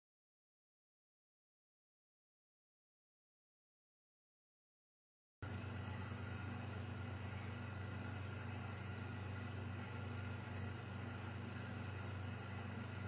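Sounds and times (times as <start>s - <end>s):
camera recording hiss and hum: 5.4s - 13.0s.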